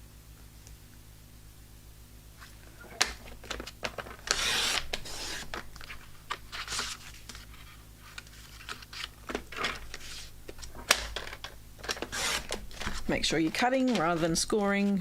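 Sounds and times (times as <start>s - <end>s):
paper being handled: 2.4s - 15.0s
paper trimmer blade scraping: 4.2s - 5.6s, 11.8s - 15.0s.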